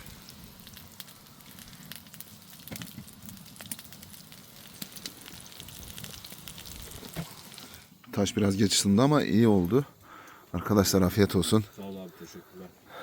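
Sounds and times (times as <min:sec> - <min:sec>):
food sizzling on hot stone: 0:00.0 - 0:12.4
wood fire crackling: 0:00.0 - 0:13.0.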